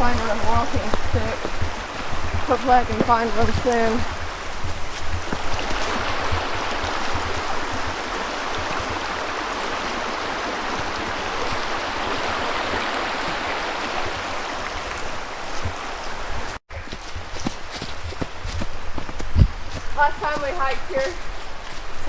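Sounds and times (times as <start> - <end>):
low thumps: 0.0 - 8.0
creek water rushing over rocks: 0.0 - 22.0.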